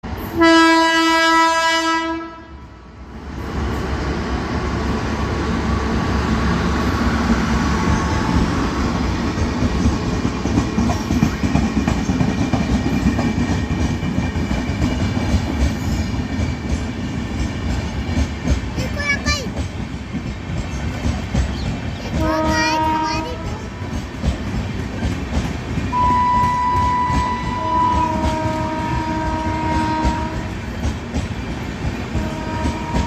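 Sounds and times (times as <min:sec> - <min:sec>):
train wheels rumbling on rails: 0:00.0 - 0:33.0
train horn blast: 0:00.3 - 0:02.7, 0:22.2 - 0:23.8, 0:25.9 - 0:30.6, 0:32.1 - 0:33.0.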